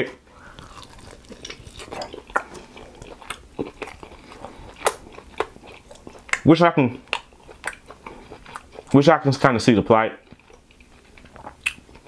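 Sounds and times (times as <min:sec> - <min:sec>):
man chewing food: 0:00.2 - 0:09.0, 0:10.2 - 0:12.0
mouth clicks and smacks: 0:07.1 - 0:08.7, 0:11.2 - 0:11.9.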